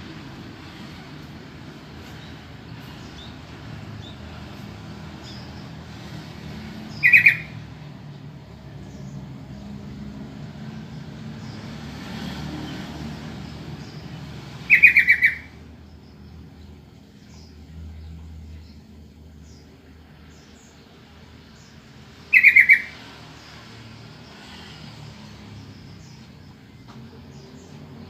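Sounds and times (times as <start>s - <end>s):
bird chattering calls: 6.9s - 7.6s, 14.6s - 15.6s, 22.3s - 23.0s.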